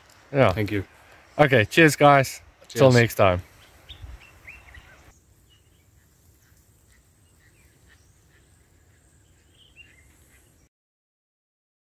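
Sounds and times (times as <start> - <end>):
background hiss: 0.0 - 10.7
bird chirps: 3.4 - 10.7.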